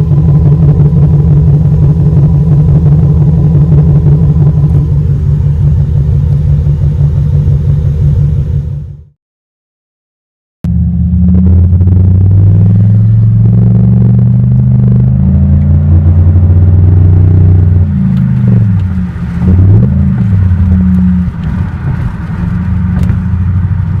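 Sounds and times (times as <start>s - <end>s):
loud deep engine drone revving: 0.0s - 9.1s, 10.6s - 24.0s.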